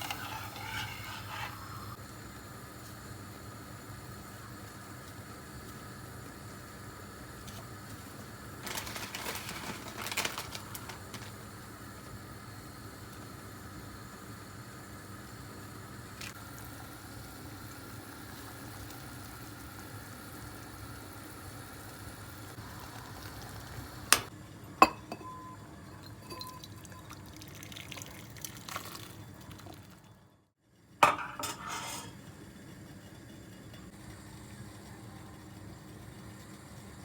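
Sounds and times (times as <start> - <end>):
faint kitchen background: 0.0 - 37.0
dishes clattering: 24.1 - 25.5, 31.0 - 32.2
glass clinks: 24.8 - 26.8.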